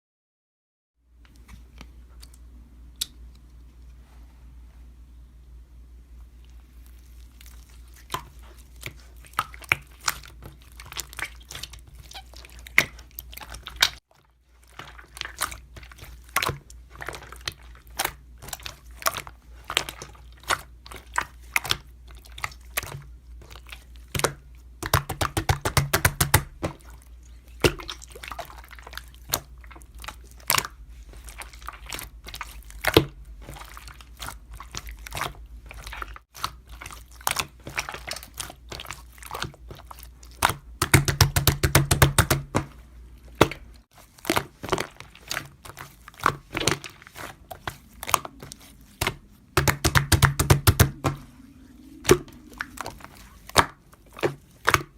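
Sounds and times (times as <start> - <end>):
low hum: 47.4 - 54.1.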